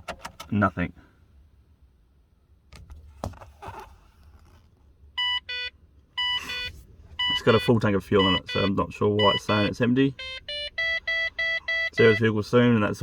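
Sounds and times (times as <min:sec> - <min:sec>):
dashboard warning chime beeps: 0:05.2 - 0:13.0.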